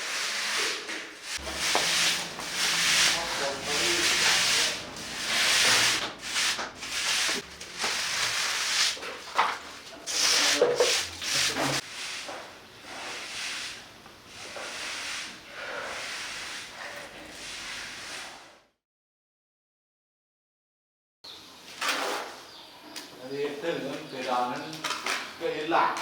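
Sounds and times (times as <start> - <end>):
trowel scraping cement on wall: 0.0 - 9.3.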